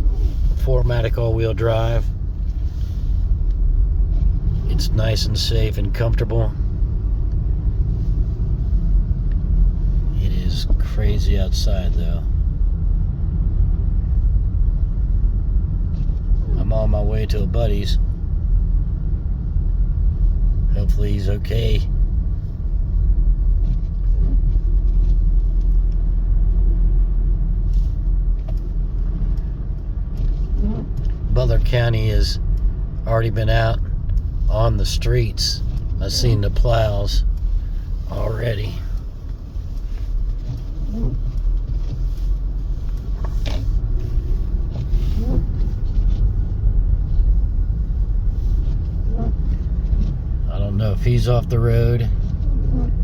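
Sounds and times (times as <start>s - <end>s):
car driving on snowy road: 0.0s - 53.0s.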